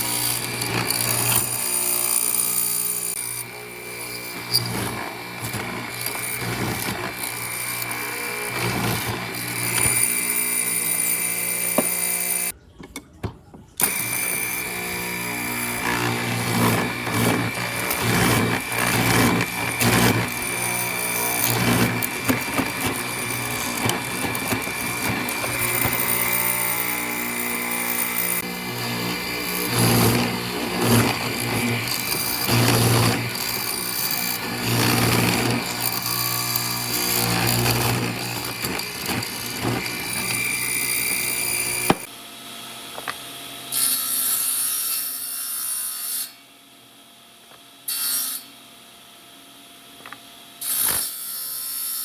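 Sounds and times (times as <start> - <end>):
power tool motor whine: 0.0 - 12.5, 13.8 - 42.1.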